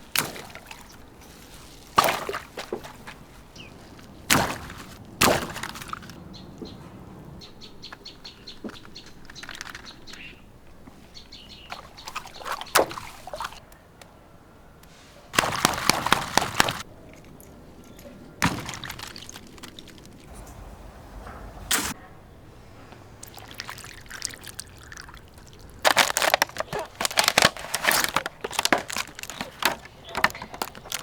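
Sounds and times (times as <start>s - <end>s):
short sharp splashes: 0.0s - 6.2s, 11.6s - 13.6s, 15.3s - 22.0s, 23.2s - 31.0s
water splashing and pouring: 0.0s - 6.2s, 11.7s - 13.6s, 15.4s - 21.0s, 23.2s - 31.0s.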